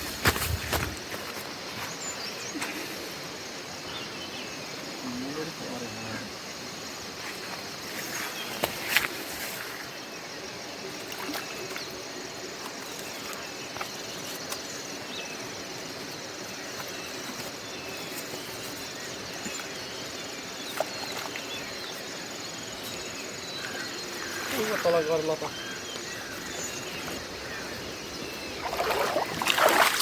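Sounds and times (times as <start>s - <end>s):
insects trilling: 0.0s - 30.0s
river water rushing: 27.3s - 30.0s.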